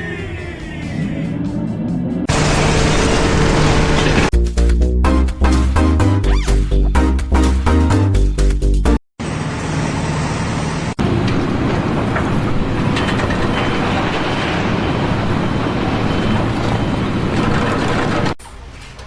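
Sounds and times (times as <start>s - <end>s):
music: 0.0s - 2.3s, 4.3s - 9.0s
vehicle noise: 2.3s - 4.3s, 9.2s - 19.0s.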